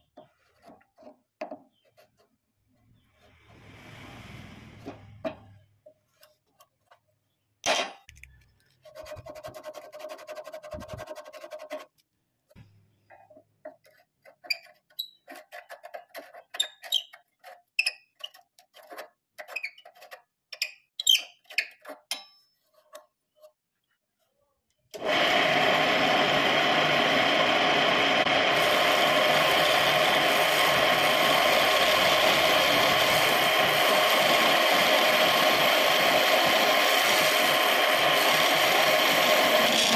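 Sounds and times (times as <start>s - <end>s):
wood lathe humming: 25.0s - 39.9s.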